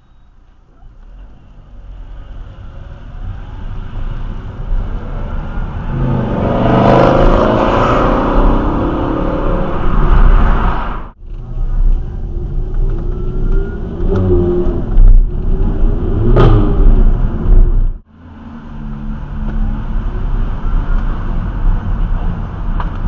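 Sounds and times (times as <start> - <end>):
car engine revving and accelerating: 2.2 - 20.3.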